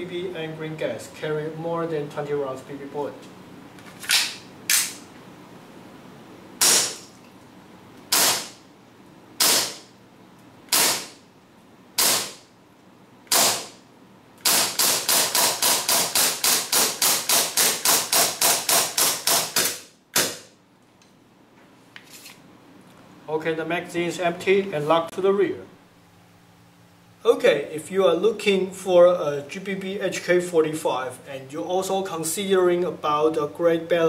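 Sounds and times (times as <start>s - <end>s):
airsoft pistol shots: 6.6s - 7.1s, 8.1s - 8.6s, 9.4s - 9.9s, 10.7s - 11.2s, 12.0s - 12.4s, 13.3s - 13.8s, 14.4s - 20.5s.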